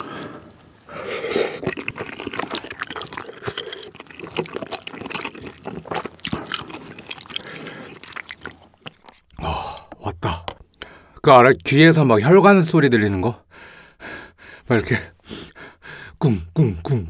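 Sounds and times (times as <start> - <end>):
slurp: 1.0 - 9.9
squelching chewing and lip smacks: 1.5 - 10.9.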